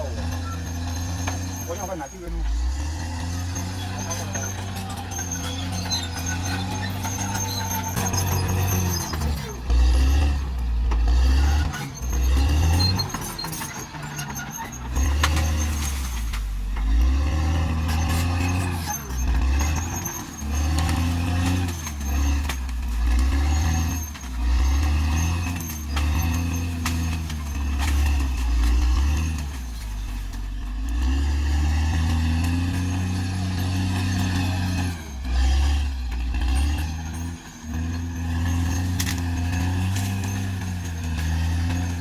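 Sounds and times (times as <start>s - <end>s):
bulldozer diesel engine revving: 0.0s - 42.0s.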